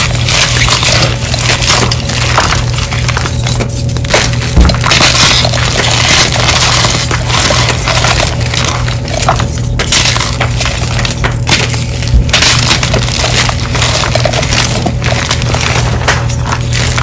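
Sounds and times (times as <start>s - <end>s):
chalk blocks crunching: 0.0s - 17.0s
steady low hum: 0.0s - 17.0s.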